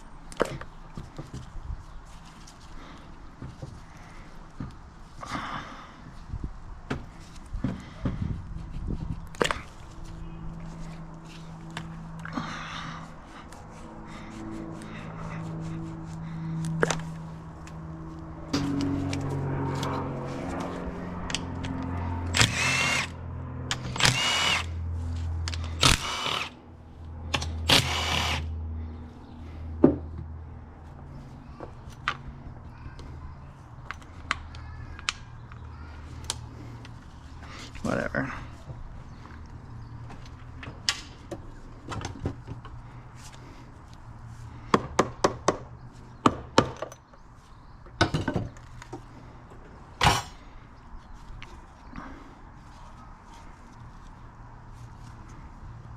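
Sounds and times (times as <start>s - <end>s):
hand-held power tool running: 22.3s - 24.8s, 25.6s - 26.6s, 27.7s - 28.5s.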